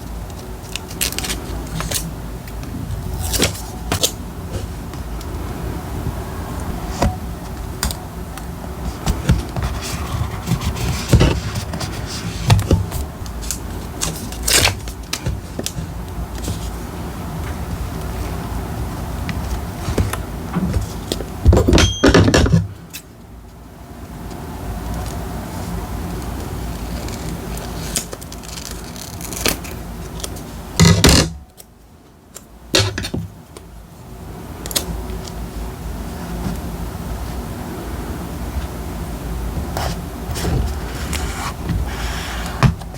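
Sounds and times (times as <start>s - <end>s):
steady low rumble: 2.1s - 9.6s
paper rustling: 8.8s - 16.9s.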